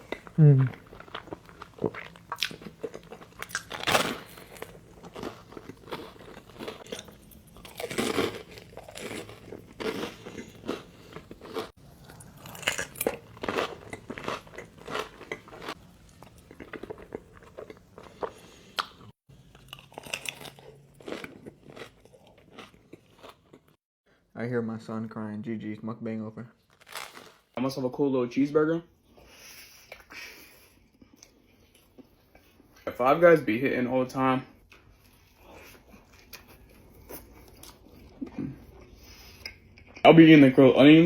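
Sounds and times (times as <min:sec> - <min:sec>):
person eating crunchy food: 0:00.0 - 0:23.8, 0:26.7 - 0:27.6.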